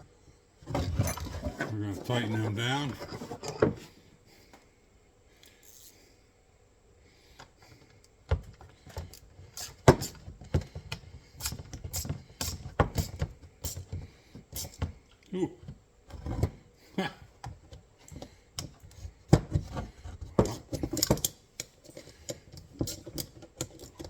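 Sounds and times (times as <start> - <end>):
metal tools clicking and clanking: 0.8 - 3.7, 20.4 - 24.0.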